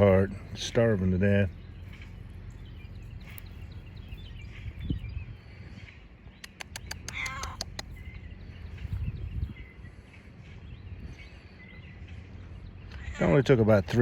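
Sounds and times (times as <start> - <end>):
low rumble: 0.0 - 6.4
faint bird chirps: 1.5 - 13.5.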